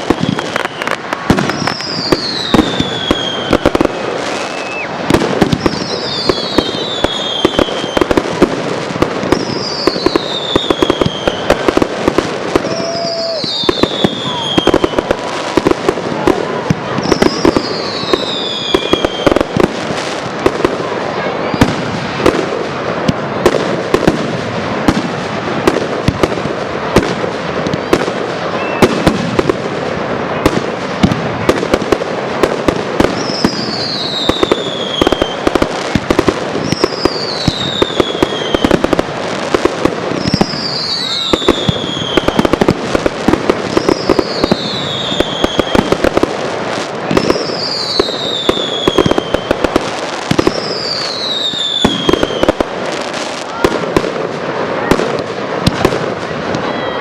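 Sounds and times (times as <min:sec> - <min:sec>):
firework whistle falling: 0:00.0 - 0:08.2, 0:09.3 - 0:19.6, 0:27.8 - 0:29.3, 0:33.0 - 0:39.0, 0:40.1 - 0:42.7, 0:43.5 - 0:46.2, 0:47.1 - 0:49.7, 0:50.3 - 0:53.8
fireworks bangs and crackling: 0:00.0 - 0:57.0.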